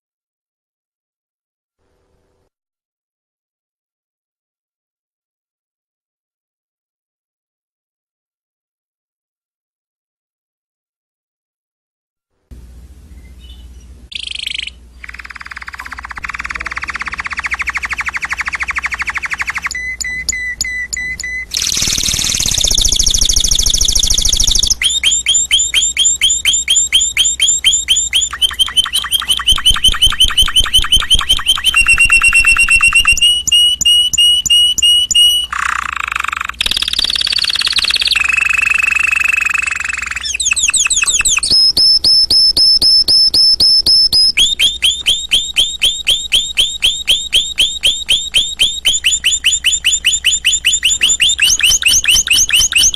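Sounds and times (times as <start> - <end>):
canary singing trills: 13.1 - 52.9.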